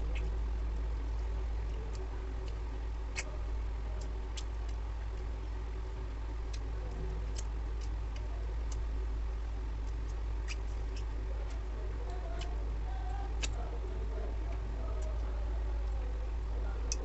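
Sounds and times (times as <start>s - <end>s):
steady low hum: 0.0s - 17.0s
wet mouth chewing clicks: 1.7s - 3.3s, 4.0s - 5.3s, 6.5s - 8.9s, 9.8s - 11.6s, 13.4s - 13.6s.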